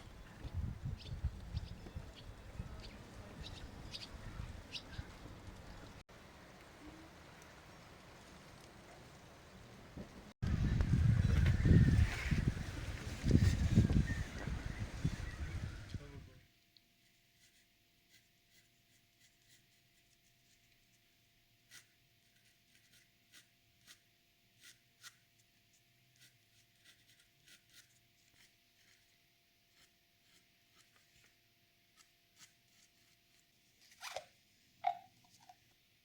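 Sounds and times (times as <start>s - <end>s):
scratching strokes on paper: 17.0s - 33.6s.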